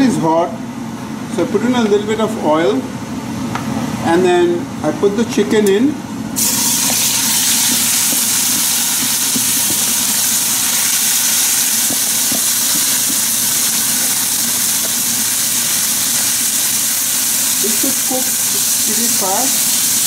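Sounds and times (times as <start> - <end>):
chicken sizzling in hot oil: 6.4 - 20.0.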